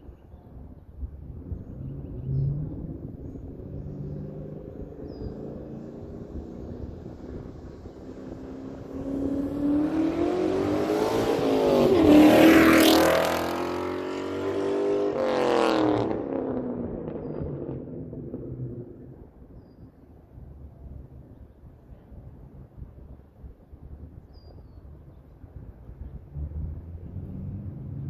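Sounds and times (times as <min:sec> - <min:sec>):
car engine accelerating past: 0:01.4 - 0:19.2, 0:26.3 - 0:28.0.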